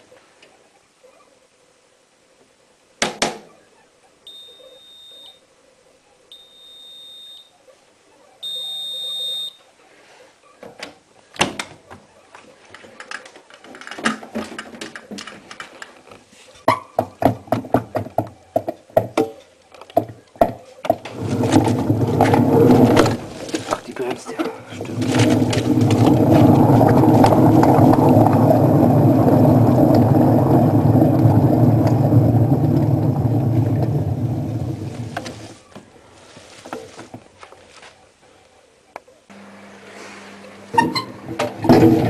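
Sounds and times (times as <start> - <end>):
washing machine beeps: 4.3 - 5.4, 6.3 - 7.5, 8.4 - 9.6.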